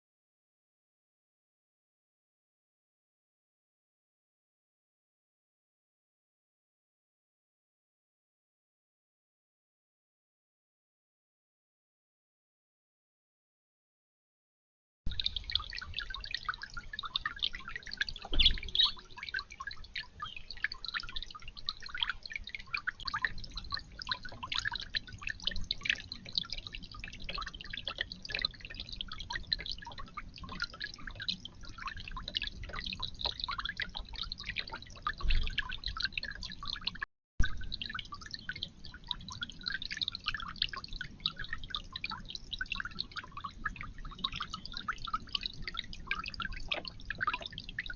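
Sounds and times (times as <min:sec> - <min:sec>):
water dripping and trickling: 0:15.1 - 0:47.9.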